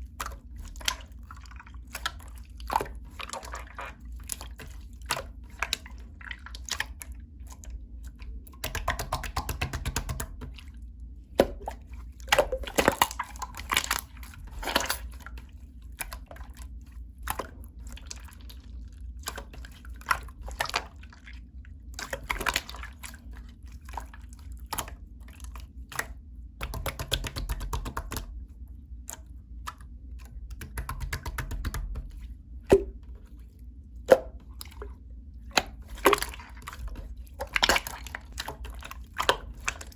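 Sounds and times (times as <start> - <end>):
sticky wet clicks and pops: 8.5 - 10.6, 25.9 - 28.3.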